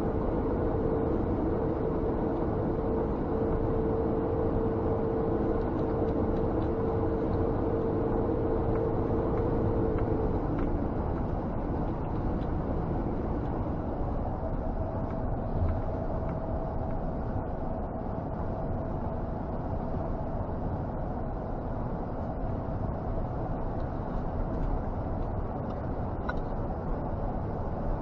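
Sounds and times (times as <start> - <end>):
diesel truck engine in cab: 0.0 - 28.0
low hum: 0.0 - 28.0
road noise: 0.0 - 28.0.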